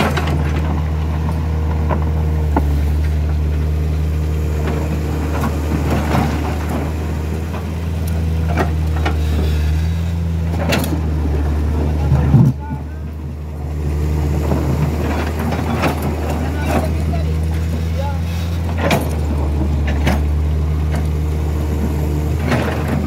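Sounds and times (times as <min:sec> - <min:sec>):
truck engine idling: 0:00.0 - 0:23.0
knocks and clanks: 0:08.4 - 0:09.6, 0:14.4 - 0:21.2.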